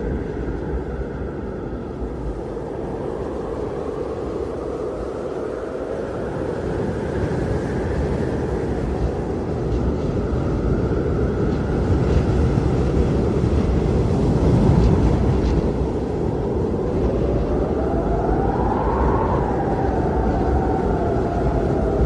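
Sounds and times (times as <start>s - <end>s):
blizzard wind blowing: 0.0s - 22.0s
wind whistling: 0.0s - 22.0s.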